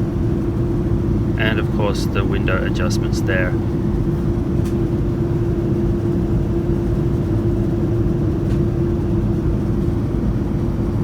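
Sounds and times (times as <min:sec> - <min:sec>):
steady hum: 0:00.0 - 0:06.9
airliner cabin rumble: 0:00.0 - 0:11.0.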